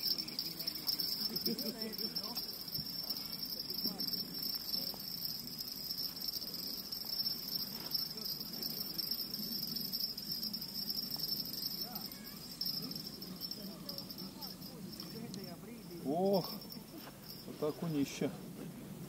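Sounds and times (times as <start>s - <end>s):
crickets chirring: 0.0s - 17.8s.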